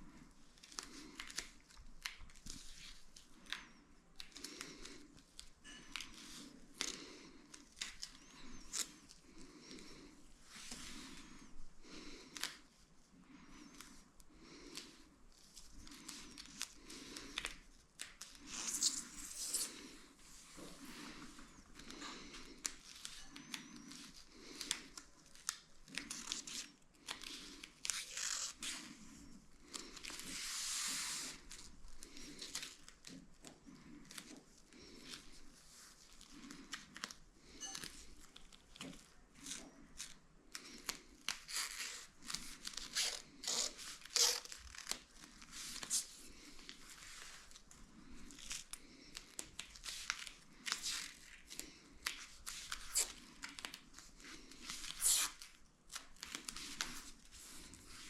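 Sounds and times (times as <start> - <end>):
material rustling and crinkling: 14.8 - 58.0.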